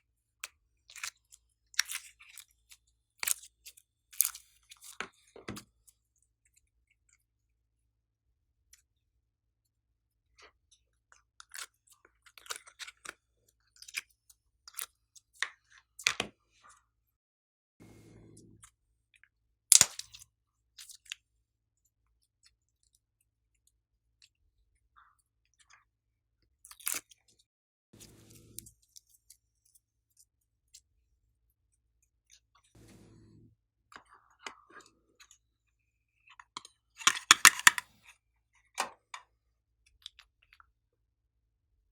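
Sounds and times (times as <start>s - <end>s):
slime crackling and popping: 19.7s - 20.2s.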